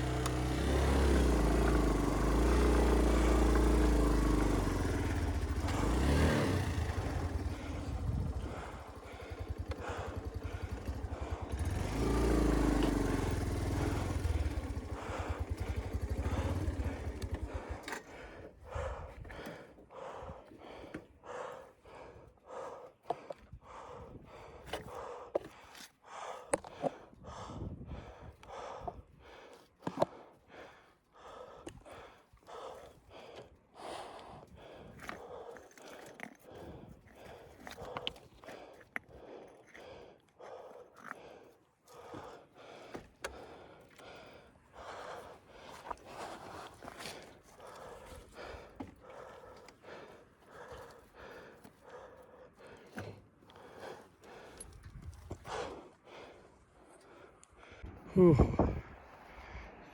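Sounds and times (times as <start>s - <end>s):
motorcycle engine revving: 0.0s - 18.0s
crunches and clicks on loose stones: 24.6s - 27.0s, 34.2s - 44.1s, 44.8s - 52.0s.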